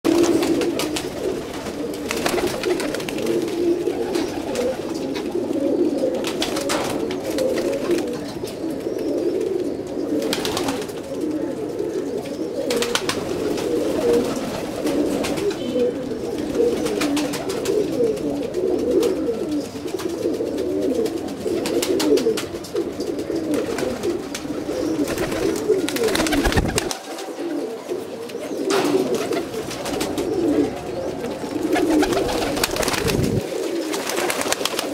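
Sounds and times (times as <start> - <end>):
wing flaps: 0.1 - 4.8, 25.0 - 27.1, 31.7 - 34.9
pigeons cooing: 0.1 - 34.9.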